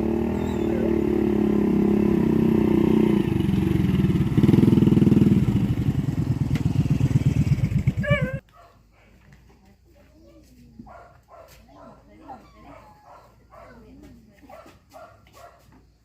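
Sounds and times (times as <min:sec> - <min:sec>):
small engine chugging: 0:00.0 - 0:08.4.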